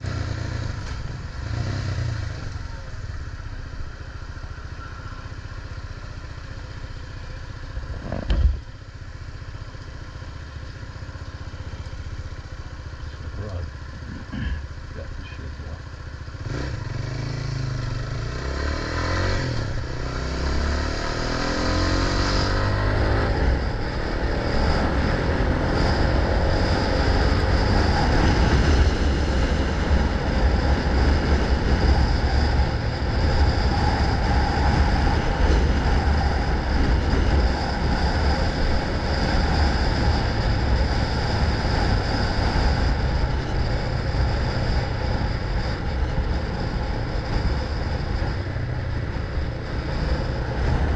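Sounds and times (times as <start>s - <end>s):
motorcycle engine running: 0.0s - 50.9s
wind noise on microphone: 21.3s - 50.9s.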